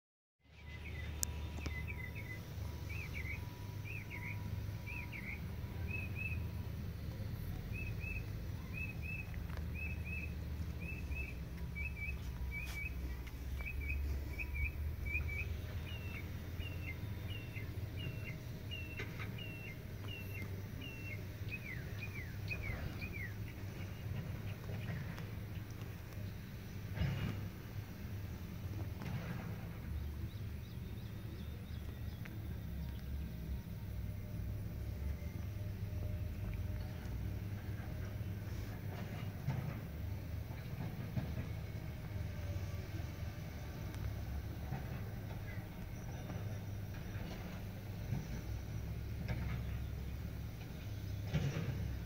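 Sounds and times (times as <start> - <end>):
steady low hum: 0.4 - 52.0
songbird whistling phrases: 7.7 - 23.4.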